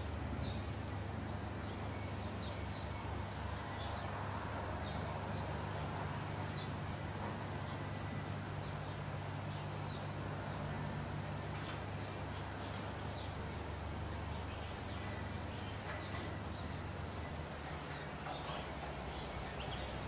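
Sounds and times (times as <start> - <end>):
bird chirping: 1.5 - 4.1, 14.2 - 20.0.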